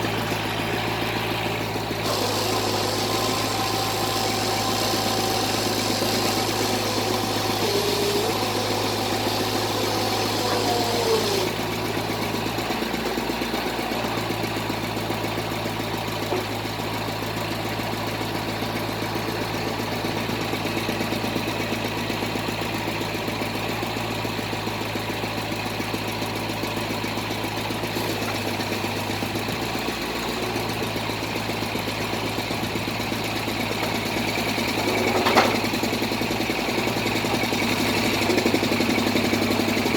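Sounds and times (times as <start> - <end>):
drilling rig low hum: 2.0 - 11.8.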